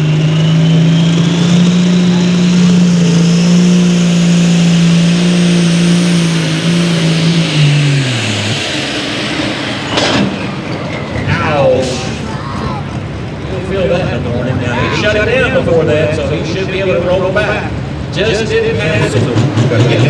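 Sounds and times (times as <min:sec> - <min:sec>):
tractor diesel engine revving: 0:00.0 - 0:20.0
high whine: 0:00.6 - 0:16.3.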